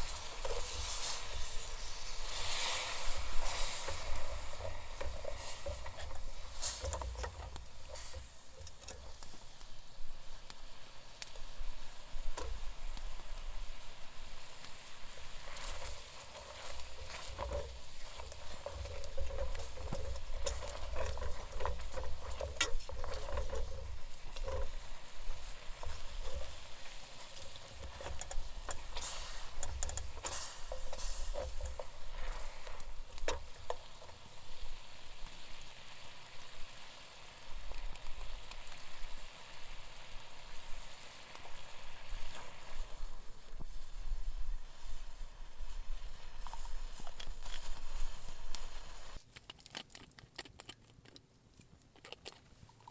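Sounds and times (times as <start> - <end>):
utensil scraping a pan: 0.0 - 9.5, 14.8 - 35.3
food sizzling in a pan: 0.0 - 49.2.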